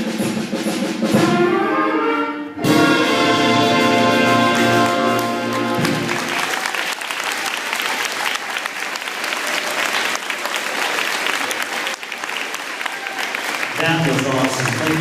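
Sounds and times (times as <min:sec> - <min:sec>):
wind band holding a chord: 0:01.2 - 0:06.4
audience applause: 0:04.3 - 0:15.0.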